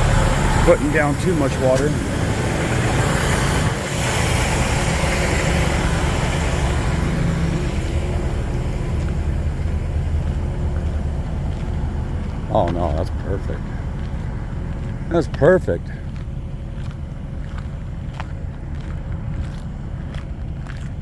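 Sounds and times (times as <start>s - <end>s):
hiss: 0.0s - 7.8s
truck engine running: 0.0s - 21.0s.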